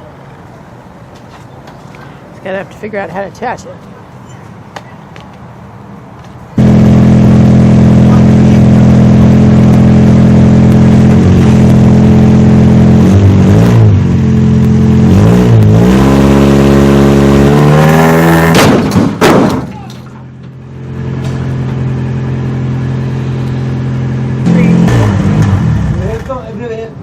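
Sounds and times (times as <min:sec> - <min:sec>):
car engine revving: 0:06.6 - 0:19.0, 0:20.6 - 0:26.4.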